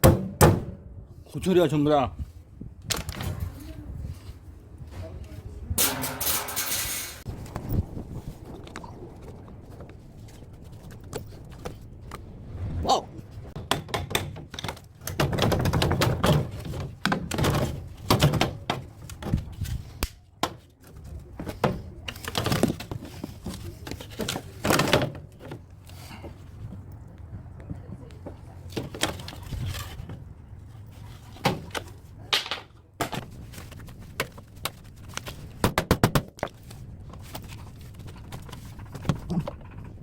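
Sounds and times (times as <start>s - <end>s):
metal knocks and clanks: 5.8s - 7.3s.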